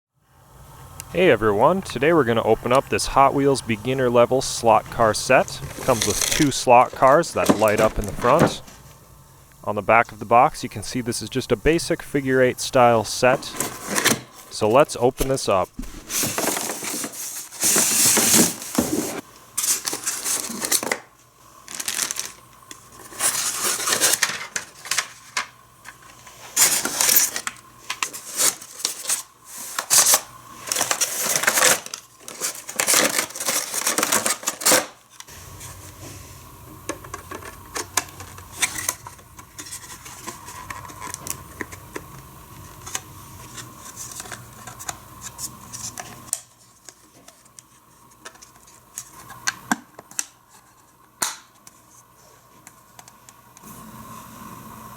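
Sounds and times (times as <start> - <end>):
steady low hum: 0.2 - 17.1, 35.2 - 47.0
toy packaging rustling and tearing: 1.3 - 8.8, 9.6 - 35.8, 37.1 - 52.0.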